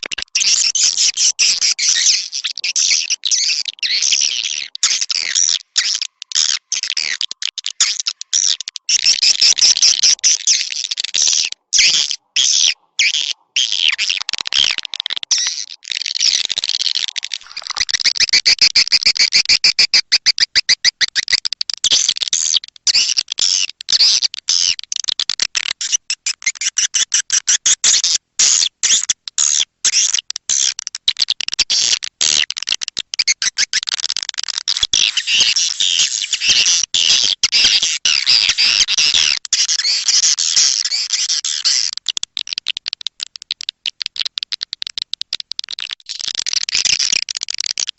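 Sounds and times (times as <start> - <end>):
swiftlets chirping and twittering: 0.0 - 18.5.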